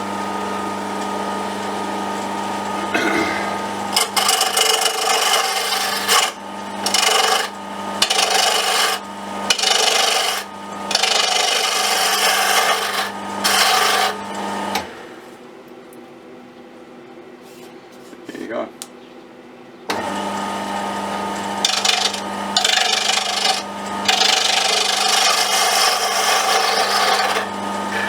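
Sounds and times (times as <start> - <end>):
wood lathe humming: 0.0 - 14.9, 19.9 - 28.0
tool scraping spinning wood: 2.8 - 14.8, 21.2 - 28.0.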